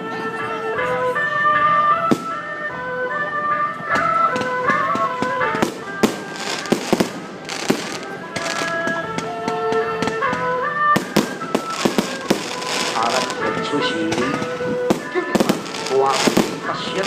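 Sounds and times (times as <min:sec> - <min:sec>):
festive electronic melody: 0:00.0 - 0:17.0
firecracker bangs: 0:05.2 - 0:09.2, 0:11.0 - 0:17.0.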